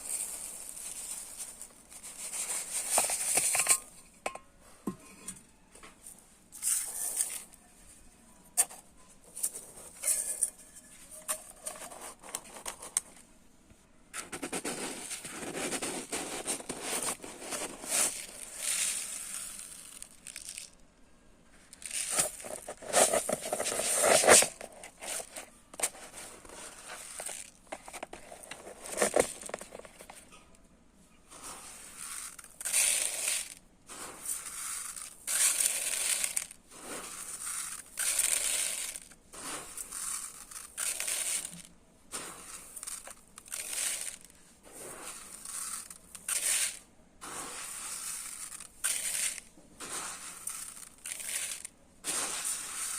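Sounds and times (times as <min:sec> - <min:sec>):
dry rice grains pouring: 0:00.0 - 0:03.3, 0:14.8 - 0:20.8, 0:21.7 - 0:24.6, 0:26.2 - 0:29.7, 0:31.3 - 0:52.9.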